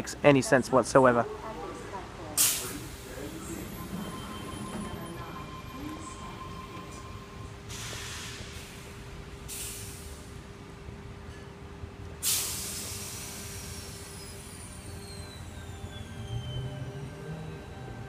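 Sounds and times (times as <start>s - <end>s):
train air brakes hissing: 2.4s - 4.9s, 7.7s - 10.4s, 12.2s - 17.4s.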